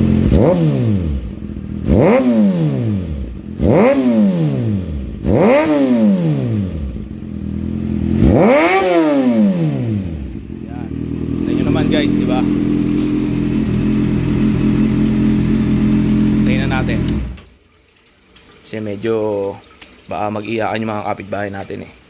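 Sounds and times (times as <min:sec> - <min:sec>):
motorcycle engine revving: 0:00.0 - 0:17.5.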